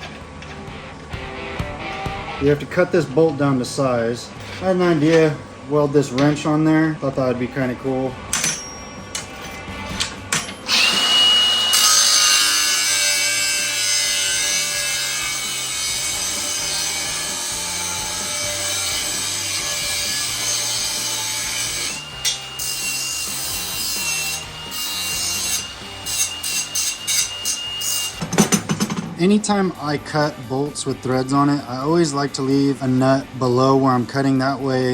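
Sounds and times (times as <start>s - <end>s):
power tool cutting steel: 7.6s - 33.9s.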